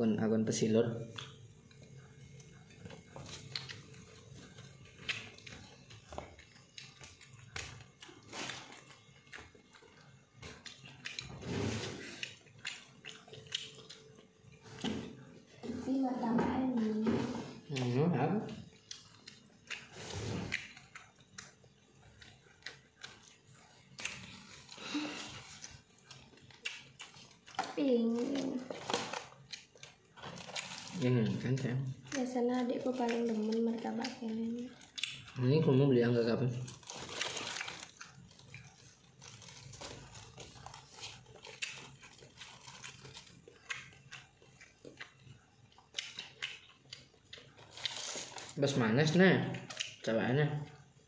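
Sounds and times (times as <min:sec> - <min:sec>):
person chewing with mouth clicks: 0:01.0 - 0:11.4, 0:12.0 - 0:15.3, 0:17.6 - 0:32.4, 0:33.0 - 0:35.4, 0:36.7 - 0:48.6, 0:49.5 - 0:50.1
breathy noise: 0:24.6 - 0:25.6.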